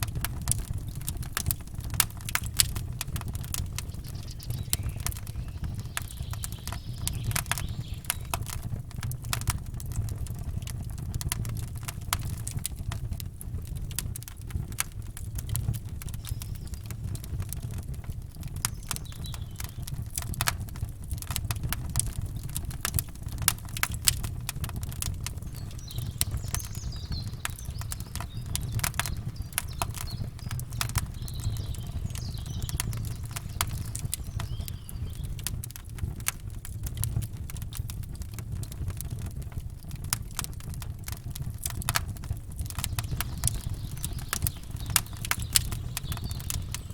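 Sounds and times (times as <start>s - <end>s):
campfire crackling and popping: 0.0s - 46.9s
faint bird chirps: 3.8s - 8.4s, 16.2s - 17.2s, 18.7s - 20.0s, 25.4s - 35.5s, 42.8s - 46.9s
steady low rumble: 21.7s - 35.4s.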